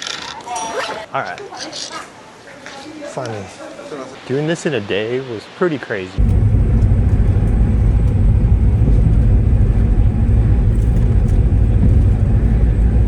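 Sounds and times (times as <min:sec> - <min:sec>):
vehicle engine rumble: 0:06.2 - 0:13.0.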